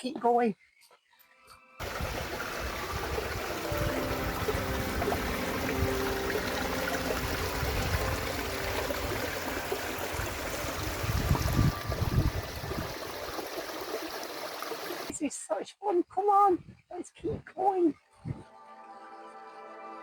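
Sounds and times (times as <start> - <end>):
stream splashing over rocks: 1.8 - 15.1.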